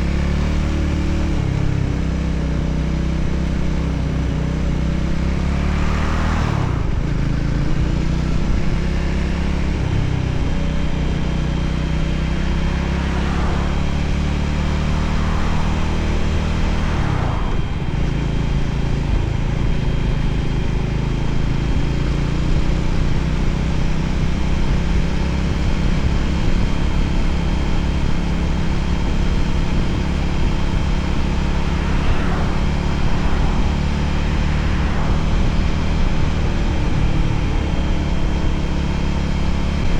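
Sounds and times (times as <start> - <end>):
motorcycle engine running: 0.0 - 39.9
wind rushing: 28.7 - 38.4.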